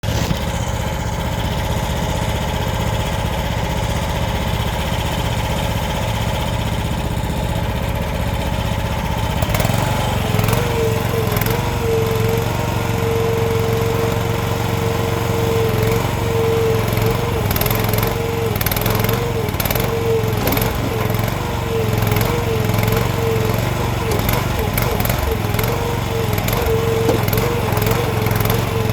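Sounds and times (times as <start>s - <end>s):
excavator engine running: 0.0s - 28.9s
hydraulic whine: 16.0s - 28.9s
knocks and clatters: 19.6s - 28.7s.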